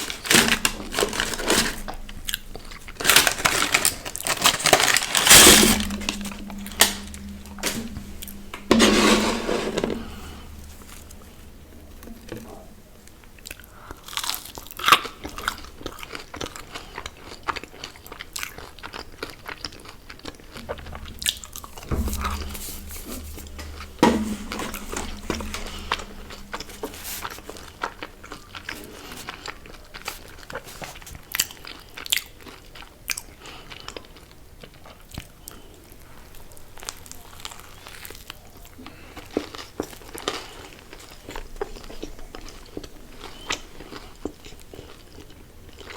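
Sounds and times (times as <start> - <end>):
person chewing crunchy food: 13.4 - 22.4.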